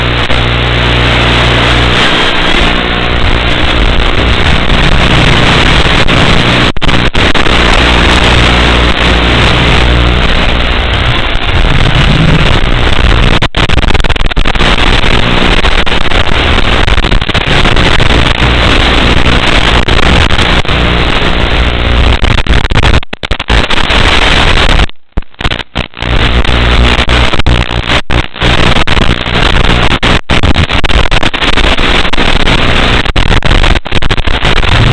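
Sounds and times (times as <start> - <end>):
buzzing static: 0.0 - 34.9
hum: 0.0 - 34.9.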